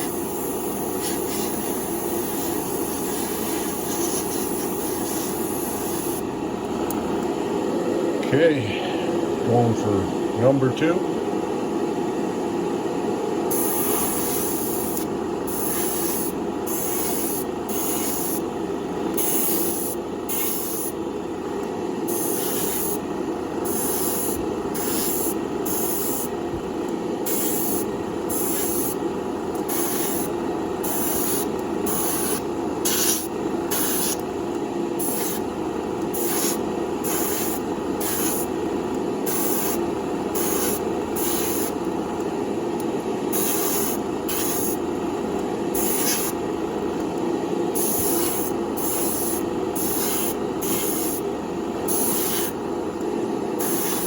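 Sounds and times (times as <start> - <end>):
spray gun hissing: 0.0 - 6.2, 13.5 - 18.4, 19.2 - 20.9, 22.1 - 23.0, 23.7 - 26.3, 27.3 - 29.0, 29.7 - 30.3, 30.9 - 34.2, 35.0 - 35.4, 36.2 - 38.5, 39.3 - 39.8, 40.4 - 41.7, 43.4 - 44.8, 45.8 - 46.3, 47.8 - 51.2, 51.9 - 52.5, 53.6 - 54.0
steady background hum: 0.0 - 54.0.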